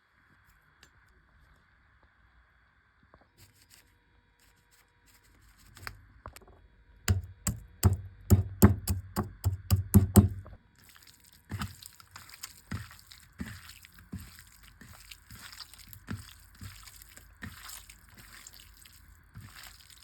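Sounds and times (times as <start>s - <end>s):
sharp knocks: 7.1s - 10.6s.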